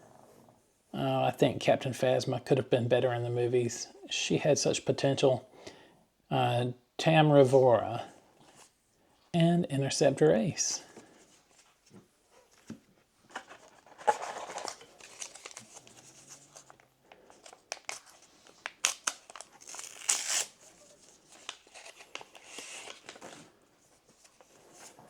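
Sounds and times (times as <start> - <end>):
wrapper tearing and crinkling: 14.0 - 23.4.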